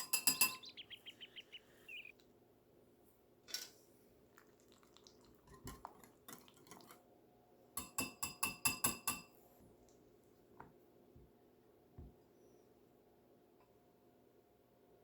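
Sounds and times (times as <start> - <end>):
utensil clinking against a bowl: 0.0 - 0.9, 5.5 - 7.0, 7.8 - 9.4.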